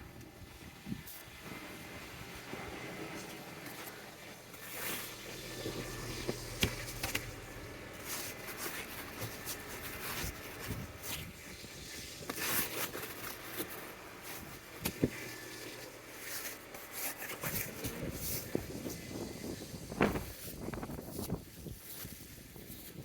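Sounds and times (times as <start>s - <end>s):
snow scraping and brushing: 4.6s - 23.0s.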